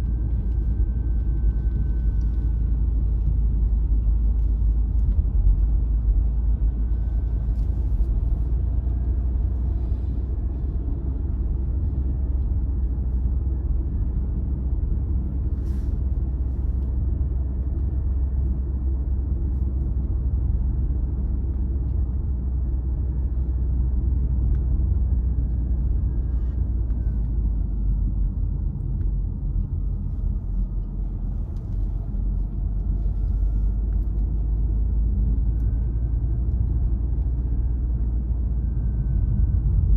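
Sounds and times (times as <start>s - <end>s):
car road and engine rumble: 0.0s - 39.9s
faint thin whine: 23.2s - 39.9s.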